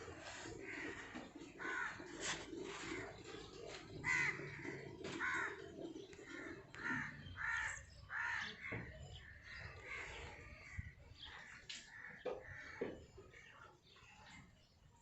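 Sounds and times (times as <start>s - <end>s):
crows cawing: 0.5s - 3.1s, 4.0s - 13.0s.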